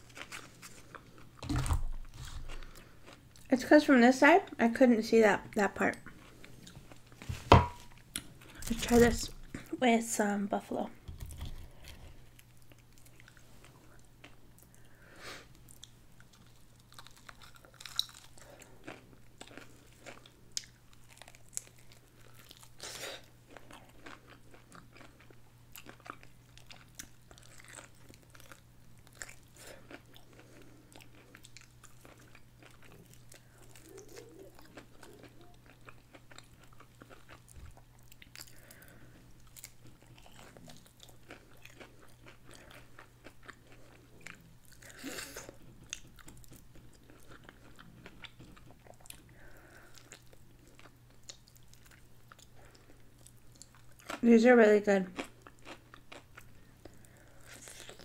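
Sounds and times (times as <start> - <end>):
faint low hum: 0.0 - 58.0
crunchy chewing: 15.5 - 54.2, 55.2 - 58.0.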